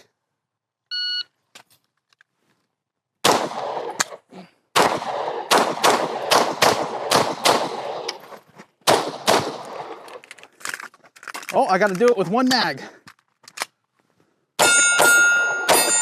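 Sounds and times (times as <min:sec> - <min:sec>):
pistol shots with ringing echo: 0:03.2 - 0:04.0, 0:04.7 - 0:08.2, 0:08.9 - 0:10.0, 0:14.6 - 0:16.0.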